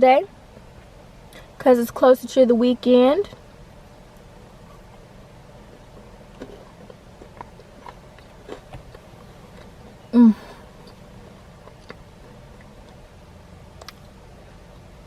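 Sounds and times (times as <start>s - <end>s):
wet mouth eating sounds: 4.2s - 13.1s.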